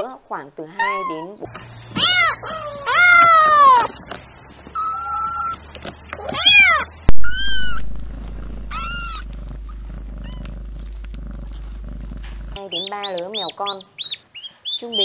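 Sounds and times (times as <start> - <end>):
kittens meowing: 0.8 - 3.9, 6.2 - 7.8, 8.6 - 9.3.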